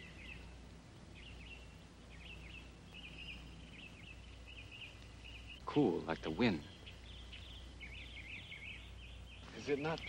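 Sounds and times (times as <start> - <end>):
faint birdsong chirps: 0.0 - 10.0
low steady hum: 0.0 - 10.0.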